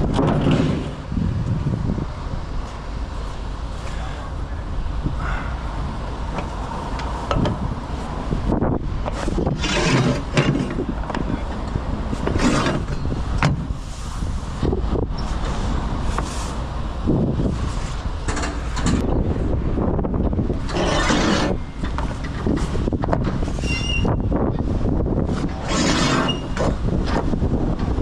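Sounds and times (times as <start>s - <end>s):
equipment clattering and knocking: 0.0s - 1.0s, 6.3s - 7.7s, 9.0s - 13.7s, 18.2s - 19.1s
wind buffeting microphone: 0.0s - 28.0s.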